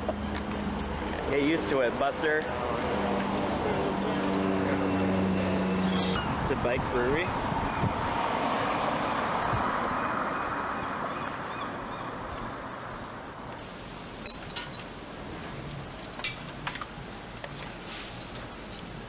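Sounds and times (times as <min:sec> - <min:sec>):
wind noise: 0:06.1 - 0:09.8
light clinks and taps: 0:14.0 - 0:15.0, 0:16.1 - 0:19.0.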